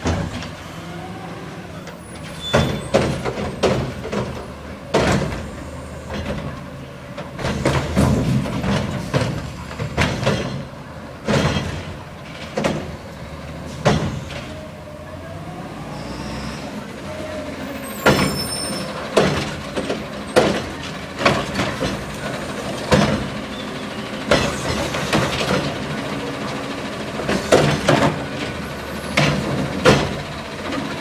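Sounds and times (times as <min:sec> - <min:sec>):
garbage truck engine running: 0:00.0 - 0:31.0
trash can banging on truck: 0:02.4 - 0:06.6, 0:07.2 - 0:14.6, 0:18.0 - 0:30.9
high-pitched squeal: 0:15.6 - 0:19.1.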